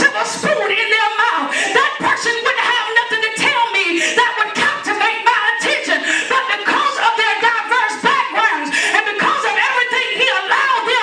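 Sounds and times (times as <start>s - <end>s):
voices singing gospel song: 0.0s - 11.0s.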